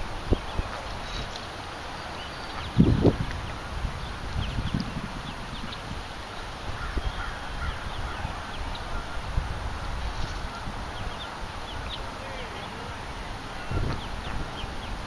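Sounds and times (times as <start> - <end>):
birds chirping: 0.0 - 15.0
wind rumble on microphone: 0.0 - 15.0.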